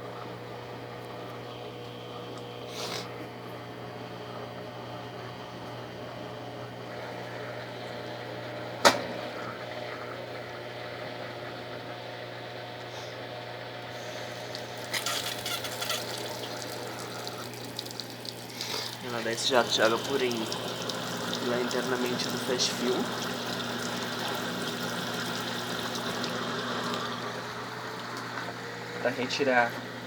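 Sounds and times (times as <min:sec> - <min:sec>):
sharp loud click: 0:08.8 - 0:09.1
washing machine low hum: 0:13.7 - 0:30.0.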